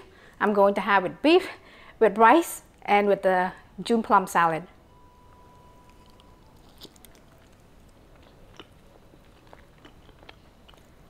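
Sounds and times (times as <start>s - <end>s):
faint chewing: 5.8s - 11.0s.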